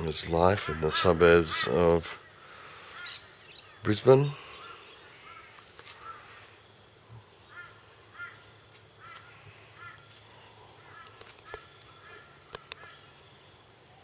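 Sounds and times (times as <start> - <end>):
bird giving harsh calls: 0.6 - 6.4, 7.4 - 10.1, 10.8 - 13.2.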